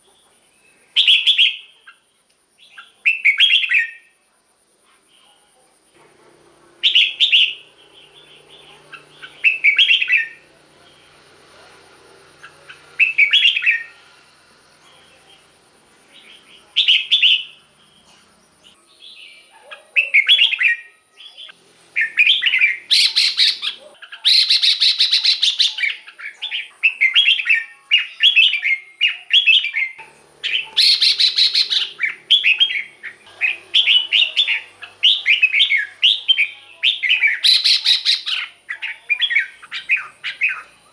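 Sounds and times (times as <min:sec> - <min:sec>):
bird singing whistled phrases: 0:01.0 - 0:01.7, 0:06.8 - 0:10.4, 0:12.4 - 0:14.0, 0:22.0 - 0:26.1, 0:26.8 - 0:40.7
faint high-pitched tone: 0:05.1 - 0:19.4
bird harsh chattering: 0:06.8 - 0:10.4, 0:12.4 - 0:14.0, 0:22.0 - 0:40.9.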